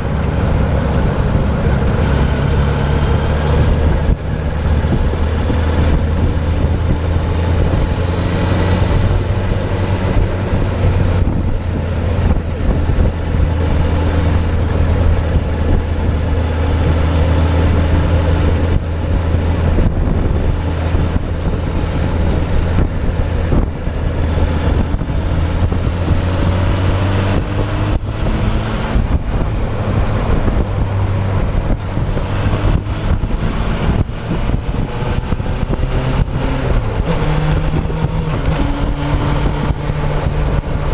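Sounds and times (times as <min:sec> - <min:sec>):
motorcycle engine running: 0:00.0 - 0:40.9
wind buffeting microphone: 0:00.0 - 0:40.9.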